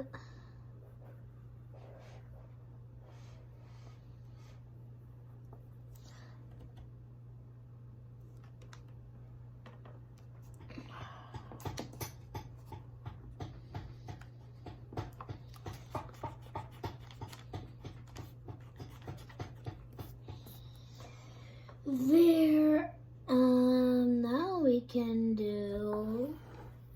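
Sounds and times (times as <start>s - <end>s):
steady low hum: 0.0s - 26.9s
drawing strokes scratching on paper: 15.8s - 20.6s.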